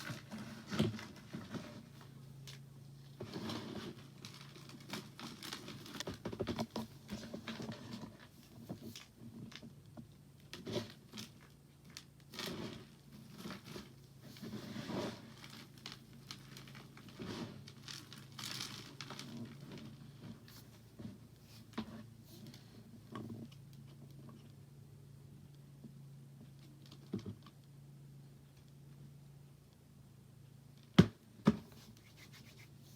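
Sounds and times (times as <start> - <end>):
faint steady hum: 0.0 - 32.9
soft scraping strokes: 14.2 - 15.4, 31.7 - 32.9.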